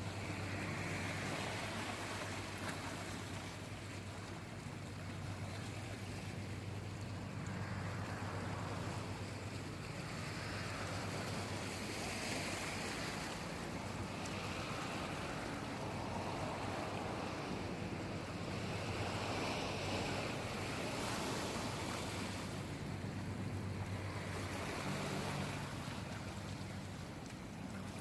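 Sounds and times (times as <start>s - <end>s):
sea waves washing in: 0.0s - 28.0s.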